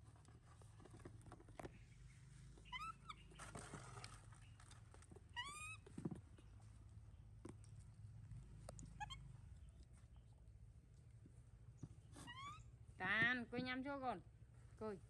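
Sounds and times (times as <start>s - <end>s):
rustling: 0.0s - 6.9s
baby monkey calling: 2.6s - 3.3s, 5.4s - 5.8s, 9.0s - 9.2s, 12.2s - 12.7s.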